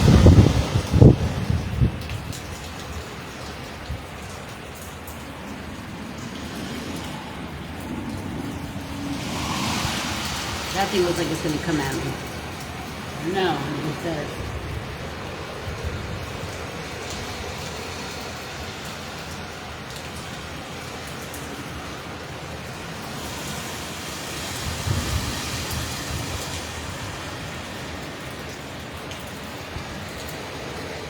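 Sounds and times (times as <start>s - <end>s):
wind buffeting microphone: 0.0s - 18.5s, 23.9s - 28.2s
wind and rain roaring: 0.0s - 31.0s.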